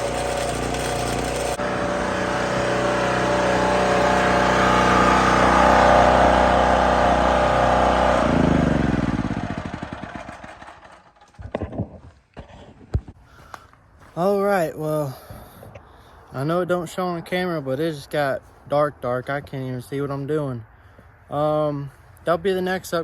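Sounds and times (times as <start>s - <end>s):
portable generator engine running: 0.0s - 11.4s.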